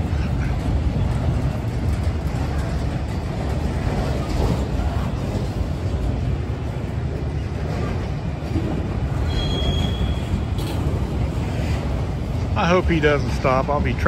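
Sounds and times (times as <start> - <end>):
train wheels rumbling on rail: 0.0 - 14.0
high-pitched wheel squeal: 9.2 - 10.5.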